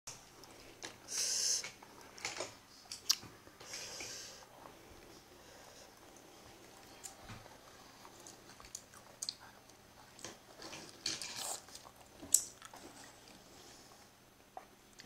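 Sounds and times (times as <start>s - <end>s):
child chewing crunchy fruit: 5.6s - 15.0s
wet mouth clicks: 8.7s - 9.4s.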